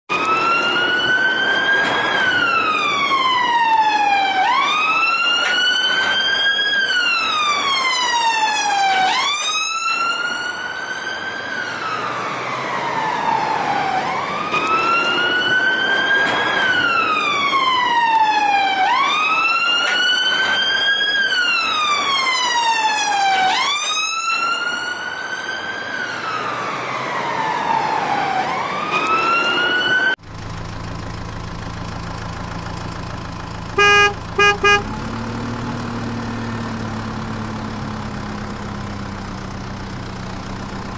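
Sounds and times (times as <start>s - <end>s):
siren wailing: 0.1s - 30.2s, 33.8s - 35.0s.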